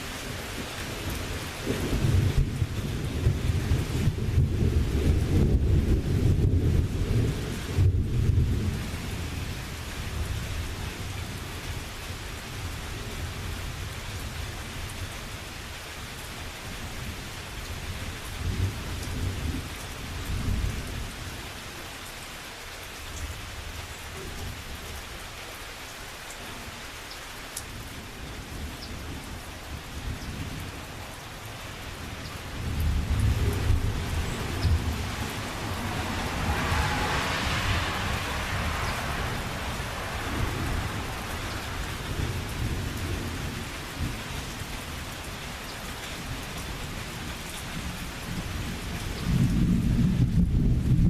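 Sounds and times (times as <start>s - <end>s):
low rolling thunder: 0.0s - 14.4s, 17.8s - 21.3s, 28.2s - 45.2s, 46.2s - 51.0s
steady rain hiss: 0.0s - 51.0s.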